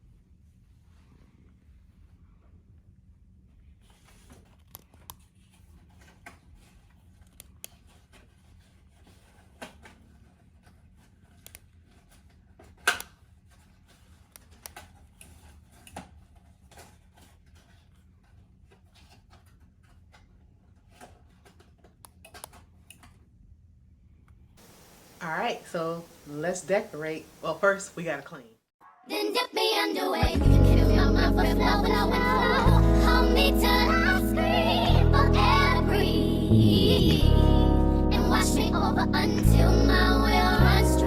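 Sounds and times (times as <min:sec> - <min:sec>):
faint steady low hum: 0:24.2 - 0:28.5.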